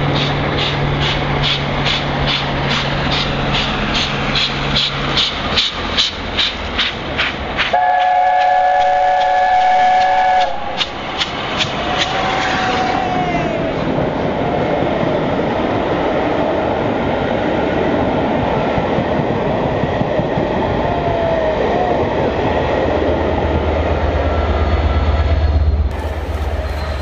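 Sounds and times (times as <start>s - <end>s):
train wheels clattering on rails: 0.0s - 13.1s, 24.7s - 27.0s
low drone: 24.3s - 27.0s.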